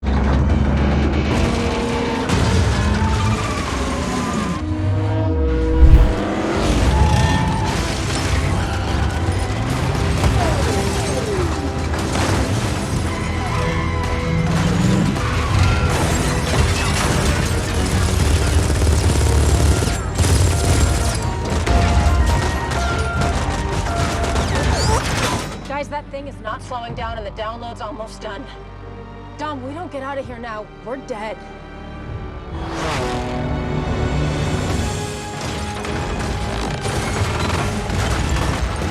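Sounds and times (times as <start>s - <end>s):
loud boom: 5.8s - 6.3s.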